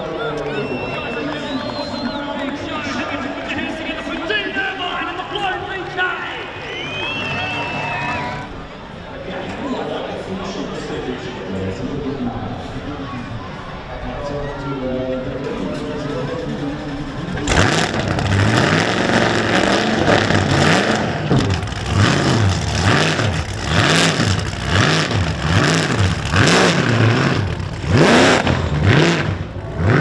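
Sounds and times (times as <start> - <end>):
car engine revving: 15.5 - 30.0.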